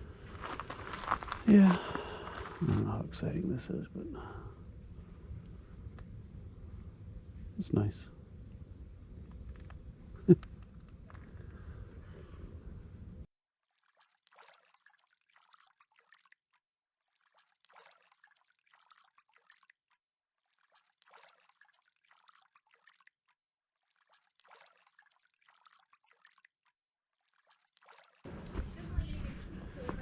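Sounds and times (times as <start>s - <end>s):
water trickling and dripping: 13.6s - 28.3s.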